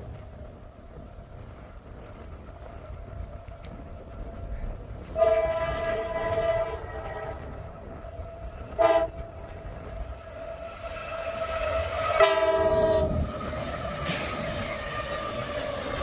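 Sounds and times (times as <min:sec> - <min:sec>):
low wind rumble: 0:00.0 - 0:16.0
locomotive air horn blasts: 0:05.0 - 0:07.5, 0:08.7 - 0:09.6, 0:11.0 - 0:14.3.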